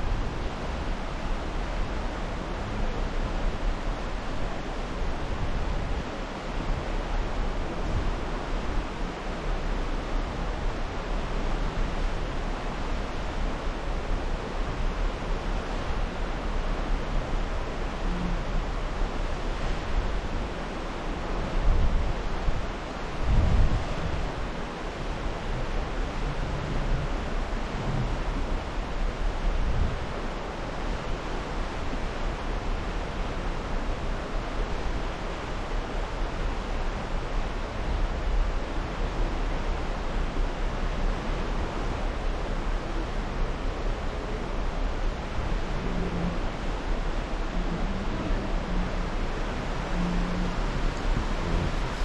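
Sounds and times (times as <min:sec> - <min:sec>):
wind and water rushing: 0:00.0 - 0:52.0
wind buffeting microphone: 0:21.5 - 0:30.2, 0:40.8 - 0:52.0.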